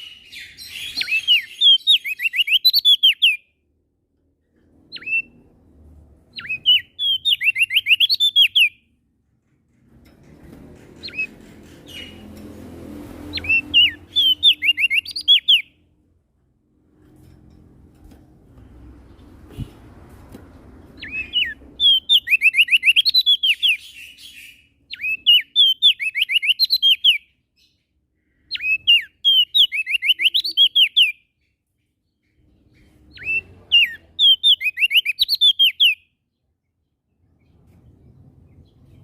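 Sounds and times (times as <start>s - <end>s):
songbird whistling song: 0.0s - 3.5s, 4.8s - 5.5s, 6.3s - 8.9s, 11.0s - 12.4s, 13.3s - 15.8s, 21.0s - 31.6s, 32.2s - 36.2s.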